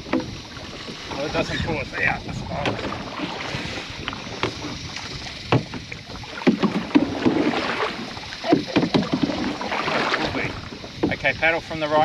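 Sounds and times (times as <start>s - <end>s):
paddles splashing in water: 0.0s - 12.0s
sharp knocks: 5.5s - 5.8s, 6.4s - 7.6s.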